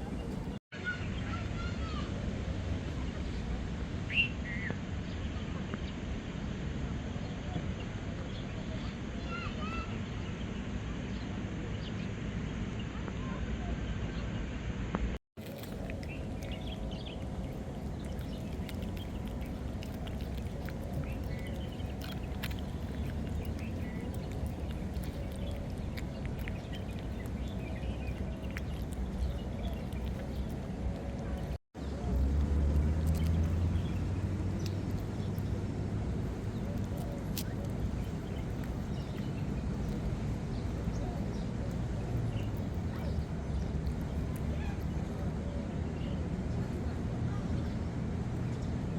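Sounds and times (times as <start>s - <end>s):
low rumble: 13.5s - 48.9s.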